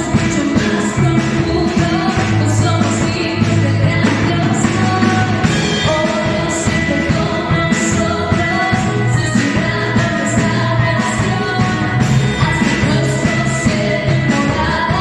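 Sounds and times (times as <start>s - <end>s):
band with drums and bass: 0.0s - 15.0s
person singing: 0.0s - 15.0s.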